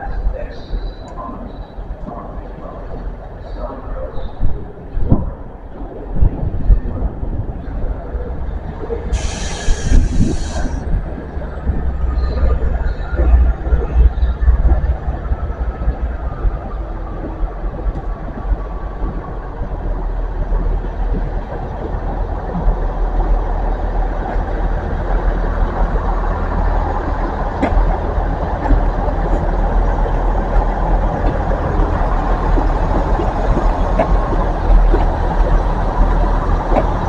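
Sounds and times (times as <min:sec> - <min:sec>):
diesel train engine running: 0:06.5 - 0:37.0.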